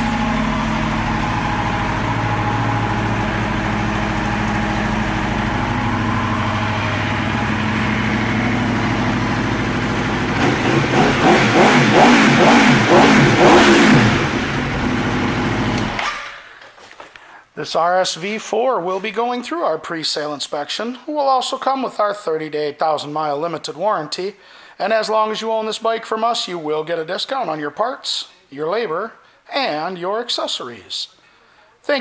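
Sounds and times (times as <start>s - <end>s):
motorcycle engine idling and revving: 0.0s - 16.4s.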